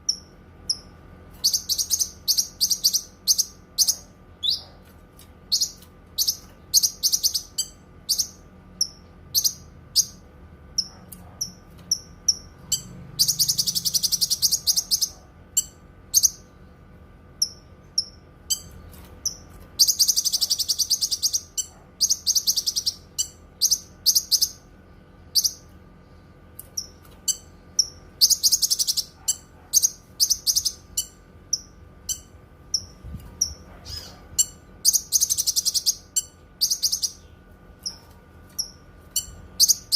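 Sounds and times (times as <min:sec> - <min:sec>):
bird chirping: 0:00.0 - 0:04.8, 0:05.5 - 0:10.2, 0:10.8 - 0:16.5, 0:17.4 - 0:24.7, 0:25.3 - 0:25.7, 0:26.6 - 0:39.9
bird chattering: 0:17.4 - 0:24.6, 0:26.8 - 0:38.0.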